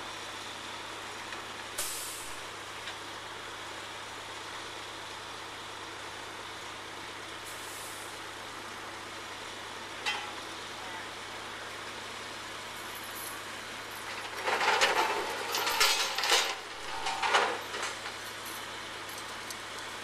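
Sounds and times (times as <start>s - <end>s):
heavy truck engine running: 0.0s - 20.0s
brief hiss: 1.8s - 2.4s.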